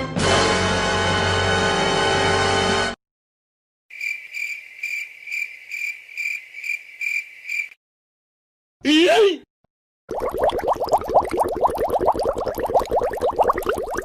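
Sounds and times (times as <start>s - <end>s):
crickets chirping: 3.9s - 7.8s.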